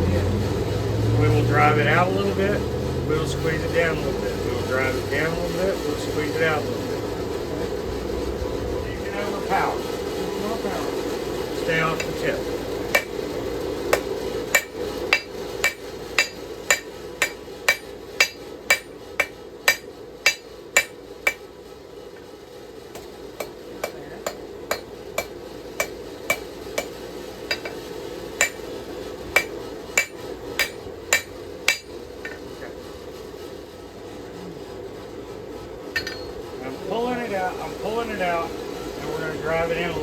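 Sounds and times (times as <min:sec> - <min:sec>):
hammer striking steel on anvil: 0:12.0 - 0:12.3, 0:12.9 - 0:13.3, 0:13.9 - 0:21.5, 0:22.9 - 0:27.8, 0:28.4 - 0:32.5, 0:35.9 - 0:36.5.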